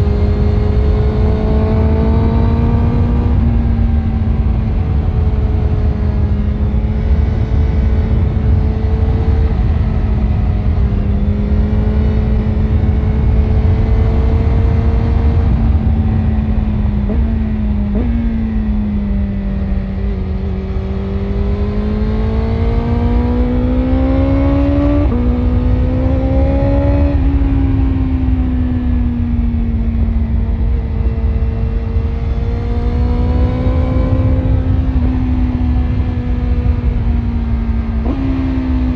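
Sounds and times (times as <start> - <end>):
motorcycle engine cruising: 0.0 - 38.9
wind rumble: 0.0 - 38.9.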